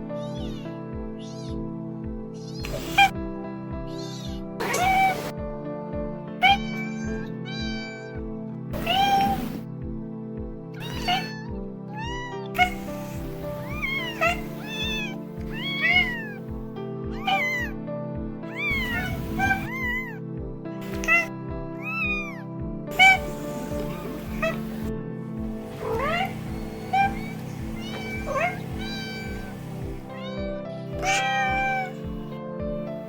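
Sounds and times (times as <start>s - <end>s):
cats meowing: 0.0s - 1.6s, 2.4s - 3.2s, 3.8s - 5.3s, 6.4s - 8.2s, 8.8s - 9.6s, 10.7s - 17.8s, 18.5s - 24.9s, 25.6s - 32.4s
background music with steady beat: 0.0s - 33.0s.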